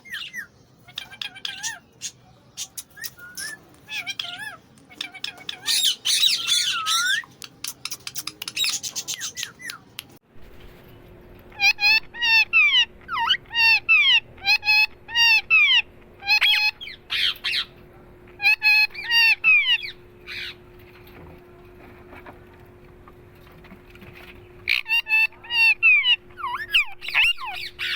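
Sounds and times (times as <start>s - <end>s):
faint steady hum: 0.0s - 27.9s
parrot clicking chatter: 0.9s - 10.1s
parrot shrill squawks: 3.0s - 7.3s.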